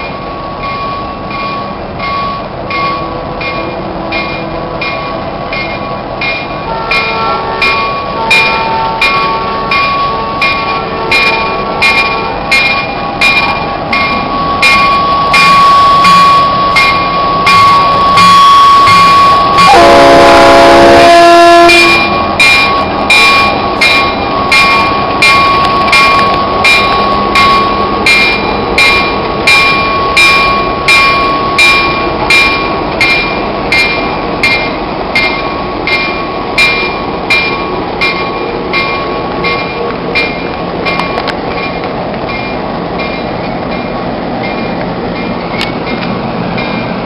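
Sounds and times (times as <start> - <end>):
train passing with rhythmic beat: 0.0 - 47.0
train chime horn: 6.6 - 32.6.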